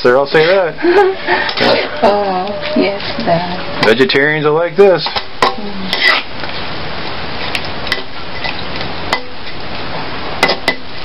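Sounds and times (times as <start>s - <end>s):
vegetables sizzling in a wok: 0.0s - 11.0s
spatula scraping a pan: 0.2s - 6.7s.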